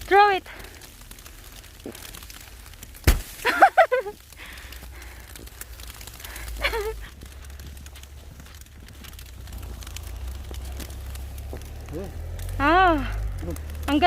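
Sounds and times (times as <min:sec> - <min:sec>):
low wind: 0:00.0 - 0:14.0
snowball landing with crack: 0:02.9 - 0:04.2.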